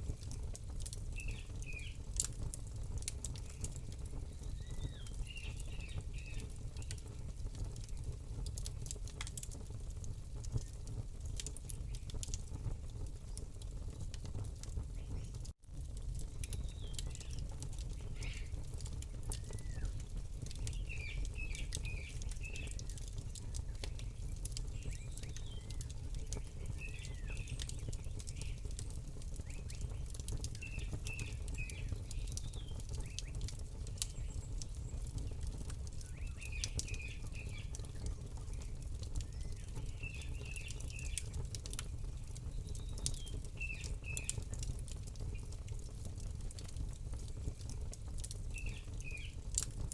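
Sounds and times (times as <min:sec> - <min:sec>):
campfire crackling and popping: 0:00.0 - 0:49.9
small bird chirping: 0:01.2 - 0:02.0, 0:03.4 - 0:07.0, 0:16.5 - 0:18.6, 0:19.3 - 0:28.8, 0:36.0 - 0:41.4.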